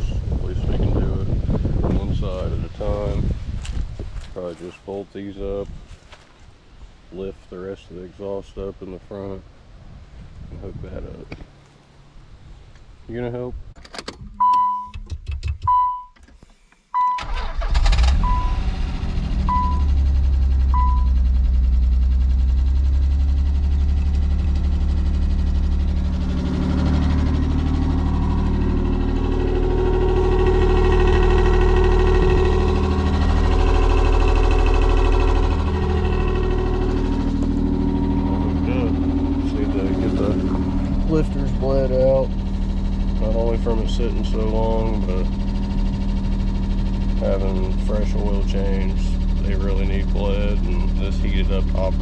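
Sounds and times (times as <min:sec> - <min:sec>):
car engine starting and idling: 0:13.7 - 0:52.0
warning chime beeping: 0:19.5 - 0:20.0, 0:20.7 - 0:21.2.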